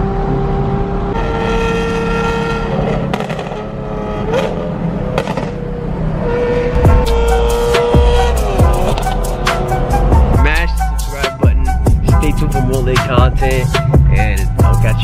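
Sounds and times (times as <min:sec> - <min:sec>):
car engine running: 0:06.7 - 0:15.0.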